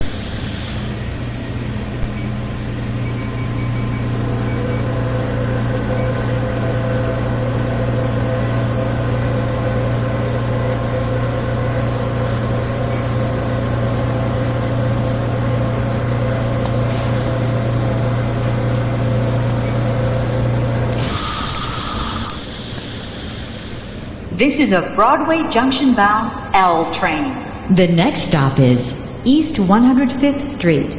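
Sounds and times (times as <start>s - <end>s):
train car equipment humming: 0.0s - 30.9s
short air hiss: 0.1s - 1.0s, 21.0s - 24.1s.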